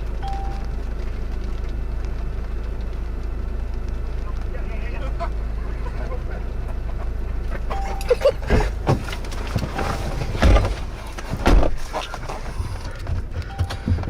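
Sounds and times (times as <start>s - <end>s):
vehicle cabin low rumble: 0.0s - 14.0s
heavy thumps and knocks: 8.5s - 11.9s, 12.9s - 14.0s.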